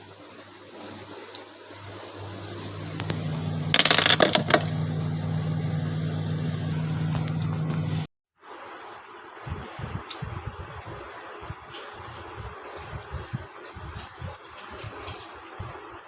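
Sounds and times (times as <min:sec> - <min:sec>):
refrigerator humming: 0:00.0 - 0:08.1
loud rattling clatter: 0:03.6 - 0:04.8.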